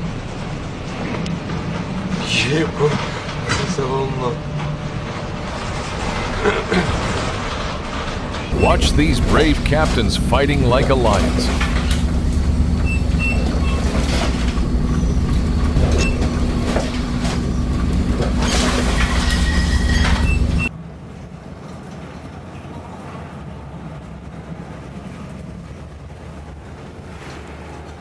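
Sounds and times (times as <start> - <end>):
clanks and rattles: 8.5 - 20.7
low mechanical drone: 8.5 - 20.7.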